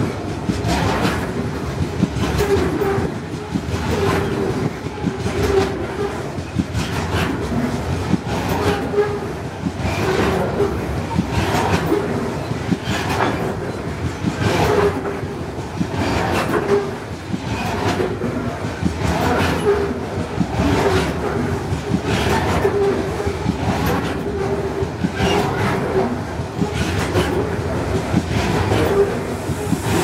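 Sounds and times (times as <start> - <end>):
train rumble: 0.0 - 30.0
train wheels clacking over rail joints: 0.0 - 30.0.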